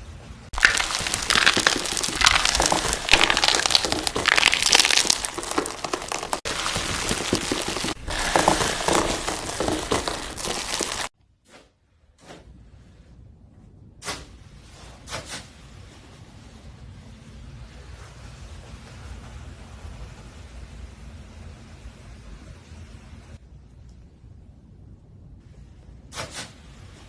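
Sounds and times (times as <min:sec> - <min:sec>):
slime crackling when squeezed: 0:00.6 - 0:11.1.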